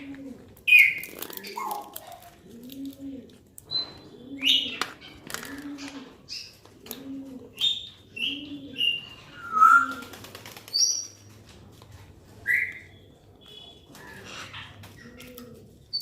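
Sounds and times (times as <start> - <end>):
bird cooing: 0.0 - 10.1, 14.1 - 16.0.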